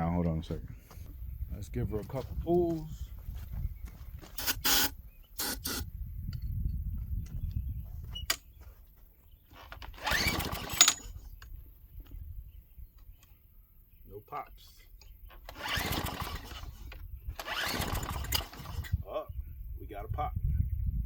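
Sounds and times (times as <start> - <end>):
recoil starter pulled: 9.5 - 11.4, 15.3 - 19.0
small engine cranking: 9.5 - 11.4, 15.3 - 19.0.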